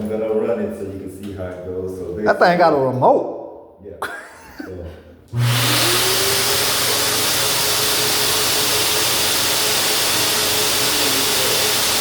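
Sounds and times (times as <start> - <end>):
duct vacuum machine running: 5.3 - 12.0.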